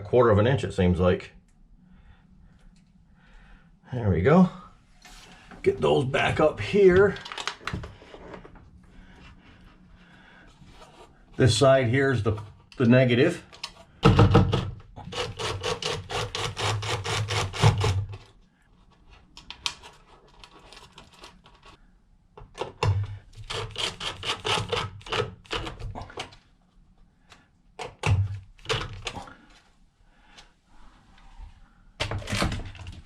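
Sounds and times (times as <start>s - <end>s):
scraping and rubbing: 5.0s - 14.0s, 15.0s - 21.8s, 23.3s - 26.4s
knocks: 14.0s - 14.8s.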